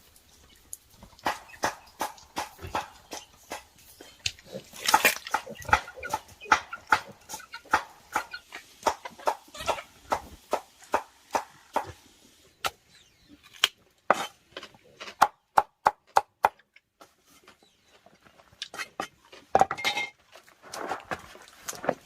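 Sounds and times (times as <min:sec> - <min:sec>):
rustling and scraping: 0:17.0 - 0:22.0.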